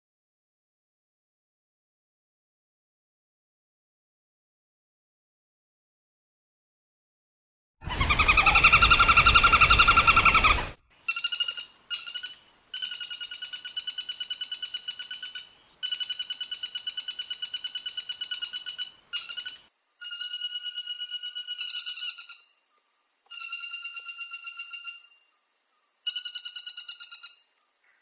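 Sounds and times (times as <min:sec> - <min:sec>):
woodpecker rattling call: 0:07.8 - 0:22.6, 0:23.3 - 0:25.2, 0:26.0 - 0:28.0.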